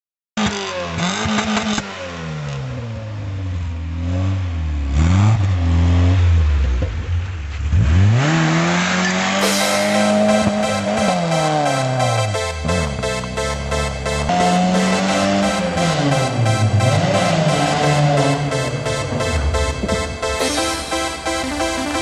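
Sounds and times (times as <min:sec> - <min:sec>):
car engine revving hard: 0:00.4 - 0:06.6, 0:07.6 - 0:20.3.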